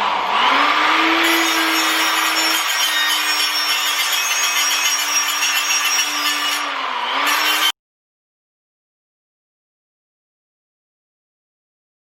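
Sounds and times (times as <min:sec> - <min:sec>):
power grinder grinding metal: 0:00.1 - 0:07.8.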